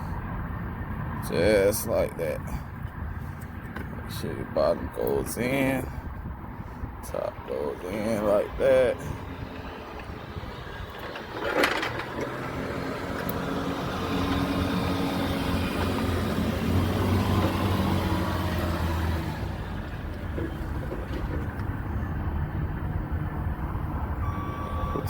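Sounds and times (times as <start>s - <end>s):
heavy truck engine running: 9.0s - 25.0s.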